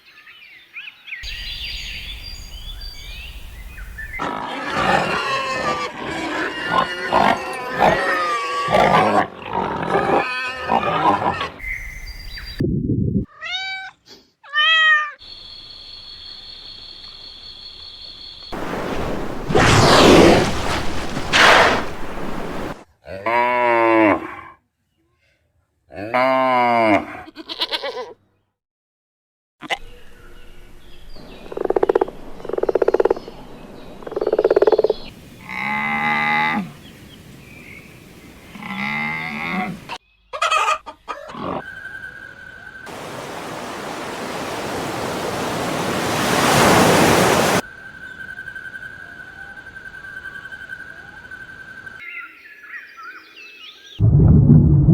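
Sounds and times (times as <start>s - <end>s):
cat meowing: 13.3s - 15.2s.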